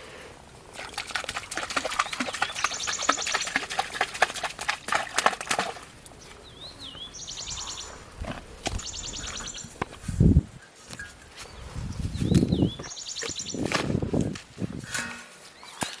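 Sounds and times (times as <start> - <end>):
birds chirping in trills: 1.8 - 4.1, 6.1 - 9.8, 11.5 - 13.7.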